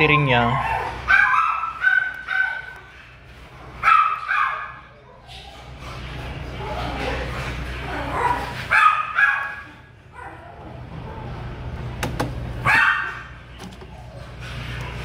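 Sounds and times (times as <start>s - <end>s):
dog barking: 0.4s - 3.0s, 3.8s - 5.3s, 8.1s - 10.6s, 12.6s - 13.4s.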